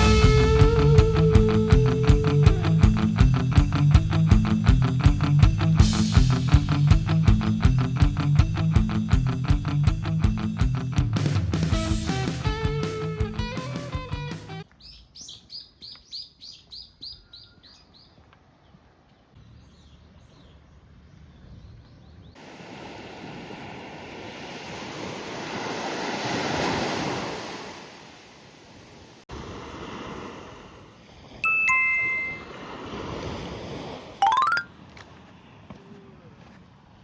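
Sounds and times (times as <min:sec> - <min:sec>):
bird chirping: 0:14.7 - 0:22.4
waves washing on shore: 0:22.4 - 0:34.4.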